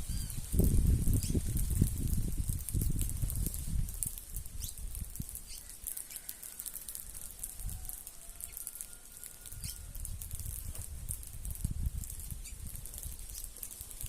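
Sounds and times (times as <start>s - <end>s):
wings fluttering and rustling: 0.0s - 14.0s
birds chirping: 9.5s - 9.9s.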